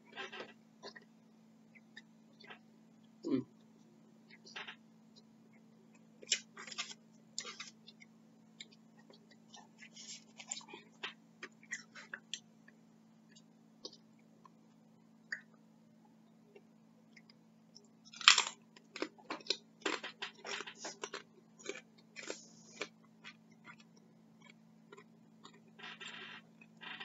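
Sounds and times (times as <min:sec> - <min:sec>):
crunching chip: 0:18.1 - 0:22.9
chewing: 0:18.1 - 0:25.8.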